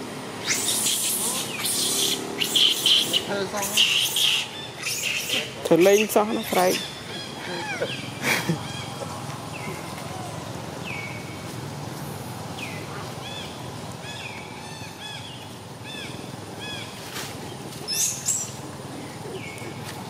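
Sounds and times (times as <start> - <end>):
outdoor background noise: 0.0 - 20.0
bird chirping: 0.4 - 9.9, 17.5 - 19.8.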